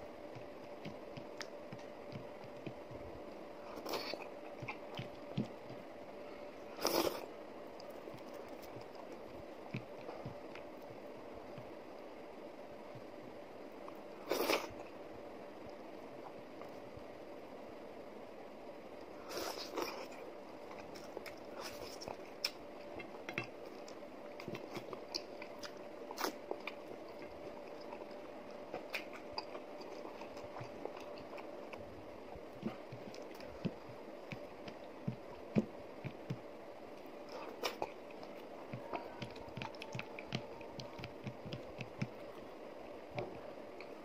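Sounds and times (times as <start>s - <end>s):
faint steady hum: 0.0s - 44.0s
person chewing with mouth clicks: 37.3s - 42.4s.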